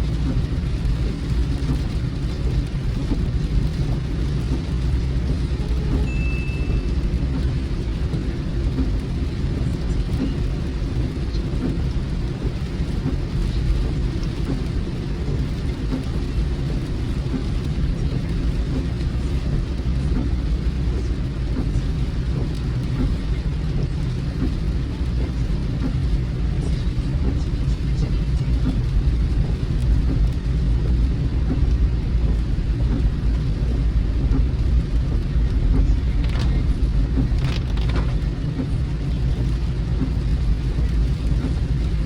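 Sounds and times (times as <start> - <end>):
rain on a car: 0.0 - 42.0
road and engine rumble: 0.0 - 42.0.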